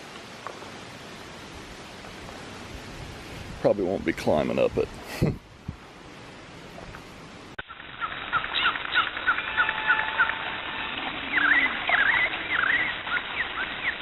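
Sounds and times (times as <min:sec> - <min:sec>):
birds chirping: 0:07.6 - 0:14.0
whistled bird calls: 0:07.7 - 0:14.0.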